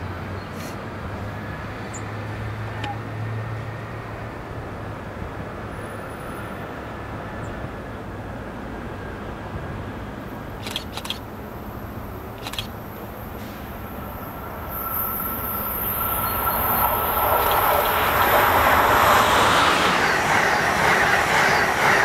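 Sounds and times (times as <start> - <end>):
train rushing noise: 0.0 - 22.0
sharp clicks: 10.6 - 11.3, 12.4 - 12.8.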